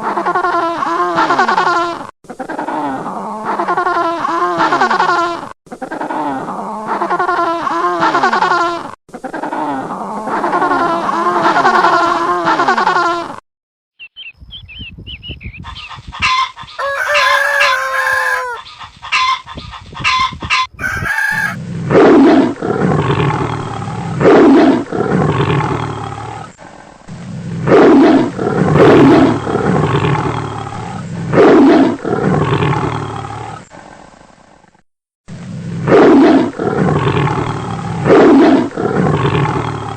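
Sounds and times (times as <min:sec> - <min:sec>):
chickens calling loudly: 0:15.5 - 0:21.6
rooster crowing: 0:16.8 - 0:18.7, 0:20.7 - 0:21.6.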